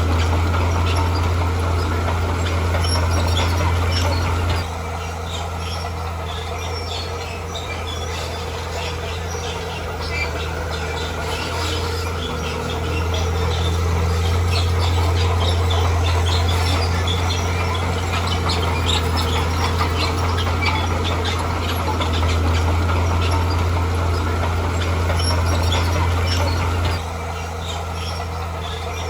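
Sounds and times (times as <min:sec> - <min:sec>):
diesel engine droning under load: 0:00.0 - 0:29.0.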